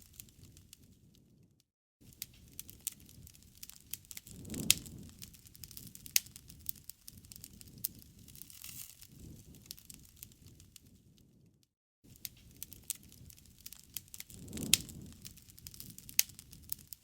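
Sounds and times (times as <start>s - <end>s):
low rumble of burning: 0.0s - 17.0s
wood fire crackling: 0.0s - 17.0s
sharp pops of fire: 2.1s - 11.4s, 12.1s - 17.0s.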